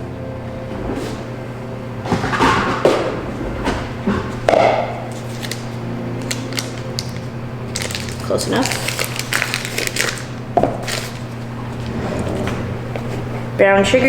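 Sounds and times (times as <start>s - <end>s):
low electrical hum: 0.0s - 14.0s
containers and utensils clinking: 2.1s - 11.9s.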